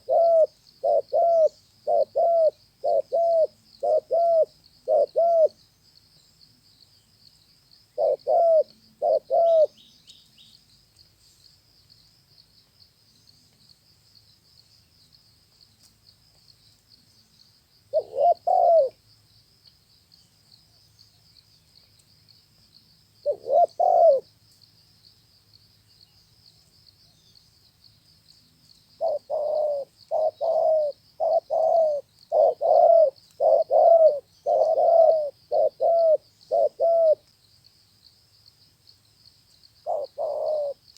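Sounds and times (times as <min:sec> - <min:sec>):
dove cooing: 0:00.0 - 0:05.6, 0:08.0 - 0:09.8, 0:17.9 - 0:19.0, 0:23.2 - 0:24.3, 0:29.0 - 0:37.2, 0:39.8 - 0:40.8.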